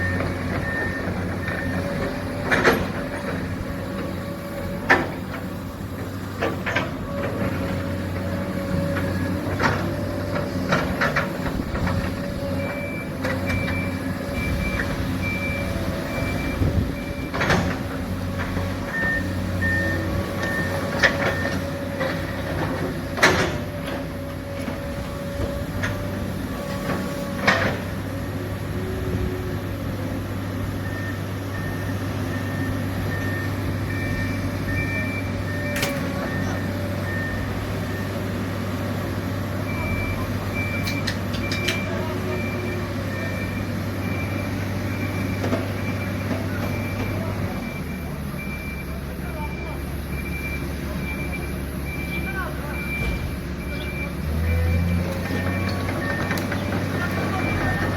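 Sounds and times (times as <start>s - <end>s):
reversing alarms beeping: 0.0s - 5.7s, 11.7s - 22.4s, 30.8s - 38.4s, 39.4s - 57.9s
heavy machinery engines running: 0.0s - 57.9s.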